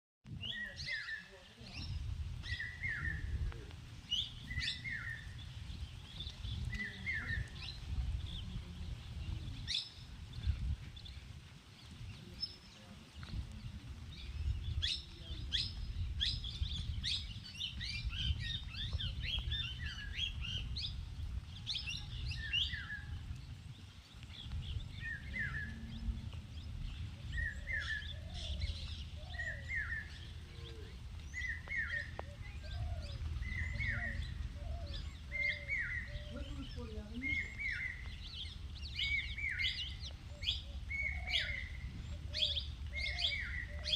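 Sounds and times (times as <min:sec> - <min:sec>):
birds chirping: 0:00.3 - 0:43.9
steady low rumble: 0:23.1 - 0:39.4.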